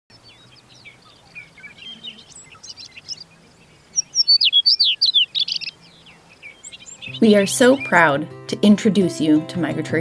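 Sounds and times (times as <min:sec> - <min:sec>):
songbirds chirping: 0:00.1 - 0:08.1.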